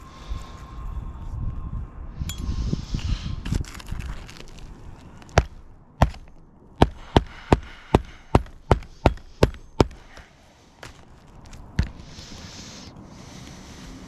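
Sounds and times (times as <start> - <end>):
hammer blows on a roof: 5.4 - 11.0.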